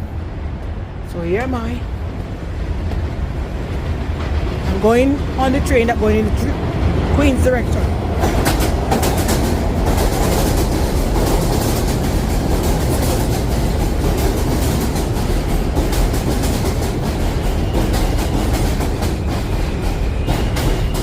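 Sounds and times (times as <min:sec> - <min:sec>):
subway train rumbling: 0:00.0 - 0:21.0
wheels clattering over rail joints: 0:08.0 - 0:21.0
high wheel squeal: 0:17.3 - 0:21.0.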